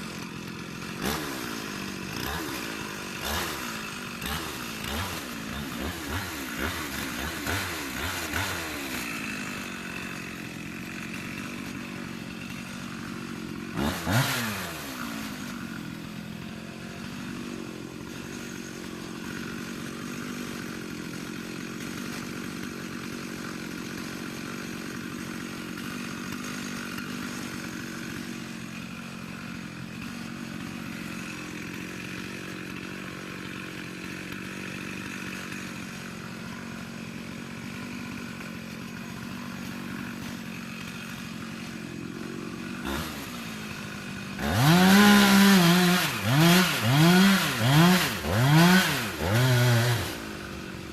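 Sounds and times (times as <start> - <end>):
chainsaw engine idling and revving: 0.0 - 50.9.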